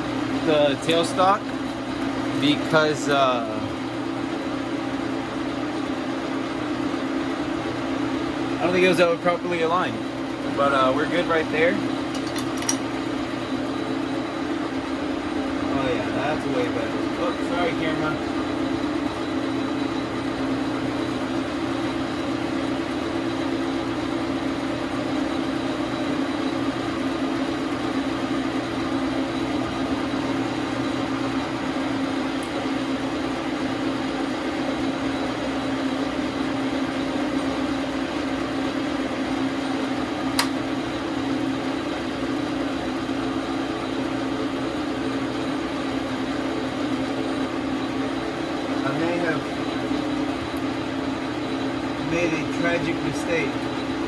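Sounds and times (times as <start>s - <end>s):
lathe motor hum: 0.0s - 54.0s
sharp click: 40.3s - 40.6s.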